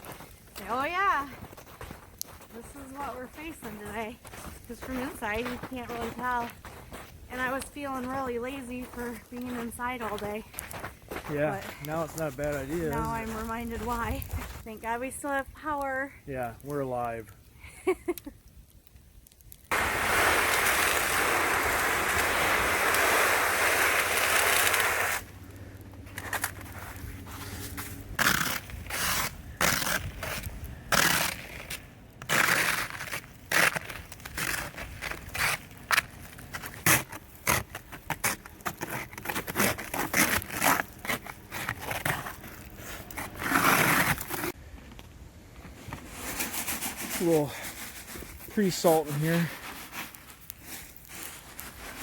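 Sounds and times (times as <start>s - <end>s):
scraping strokes in ice and slush: 19.7s - 25.3s, 26.1s - 44.6s, 46.0s - 52.0s.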